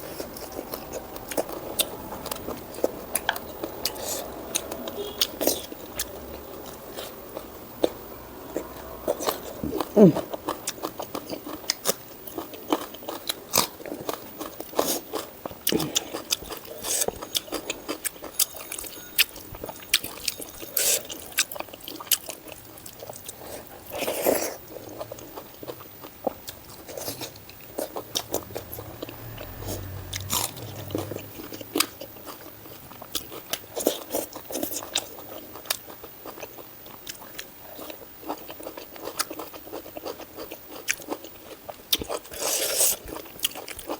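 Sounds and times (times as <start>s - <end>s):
person chewing food: 0.0s - 43.9s.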